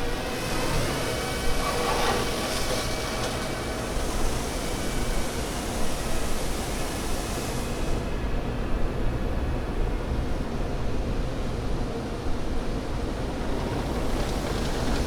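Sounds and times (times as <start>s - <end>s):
hiss: 0.6s - 8.0s.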